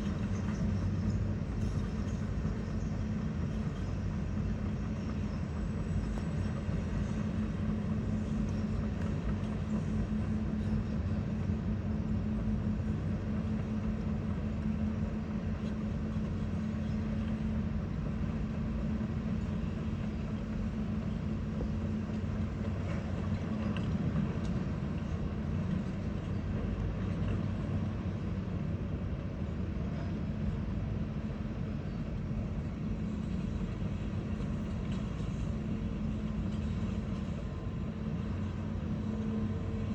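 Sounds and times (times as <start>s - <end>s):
heavy machinery engine humming: 0.0s - 39.9s.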